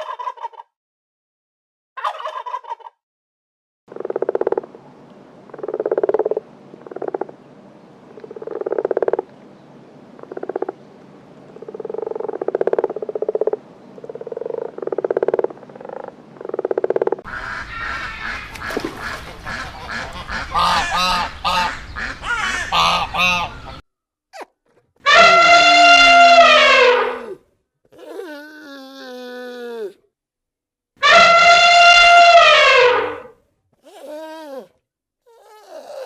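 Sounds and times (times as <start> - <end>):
harsh animal calls: 11.6 - 23.8, 24.4 - 29.9, 31.0 - 34.7
long falling animal call: 25.1 - 27.4, 28.0 - 30.0, 31.0 - 34.7.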